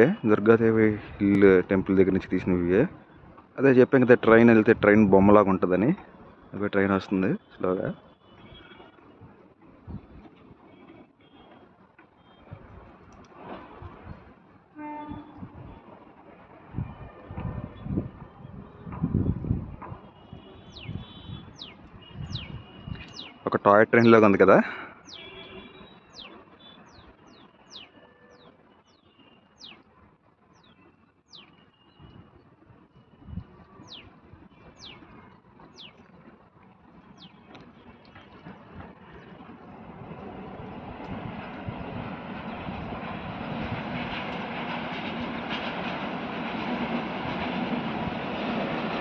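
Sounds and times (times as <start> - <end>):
train rumbling along track: 0.0 - 49.0
bird chirping: 20.5 - 23.4, 25.0 - 29.9, 30.5 - 32.2, 33.8 - 35.1, 35.7 - 36.1.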